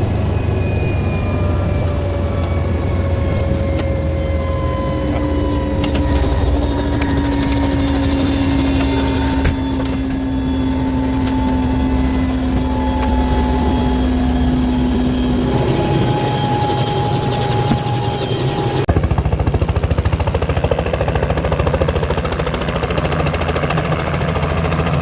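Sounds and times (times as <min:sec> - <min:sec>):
helicopter engine and rotor: 0:00.0 - 0:25.0.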